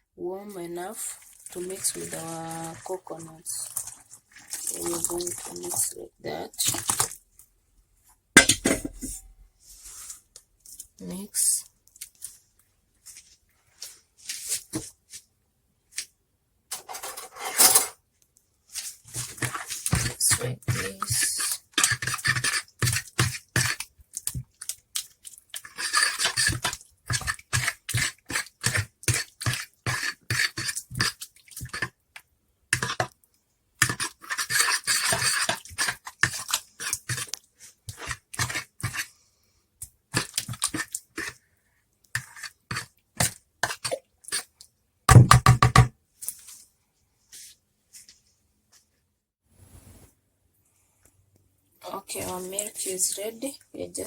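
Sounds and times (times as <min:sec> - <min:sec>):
hands squeezing wet coconut: 0:01.0 - 0:06.0, 0:06.6 - 0:07.5, 0:11.8 - 0:15.2, 0:18.6 - 0:41.4.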